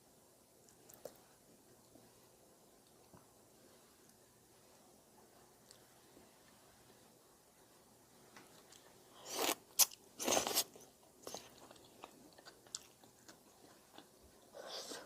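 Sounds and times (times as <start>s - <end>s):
chewing and mouth clicks: 8.6s - 14.9s
person eating noodles: 9.1s - 15.0s.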